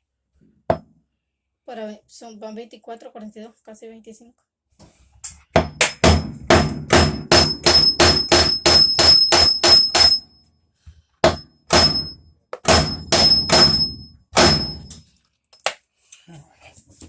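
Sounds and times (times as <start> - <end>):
hammer blows on metal shaft: 6.0 - 10.2, 11.3 - 14.9.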